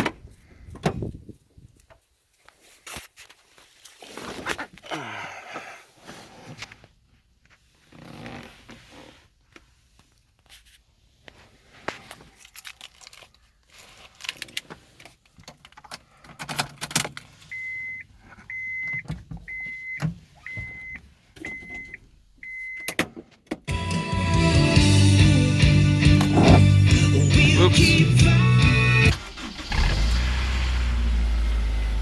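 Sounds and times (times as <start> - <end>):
car warning chime beeping: 17.5 - 23.0.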